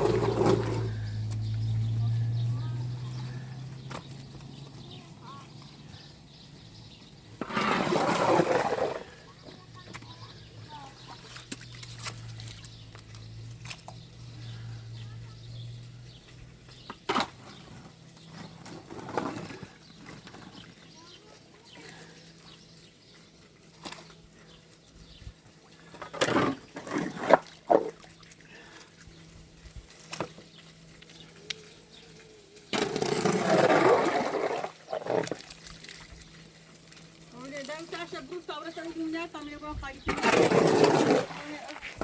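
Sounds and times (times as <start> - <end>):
water gushing: 0.0 - 3.4, 7.3 - 12.8, 32.5 - 42.0.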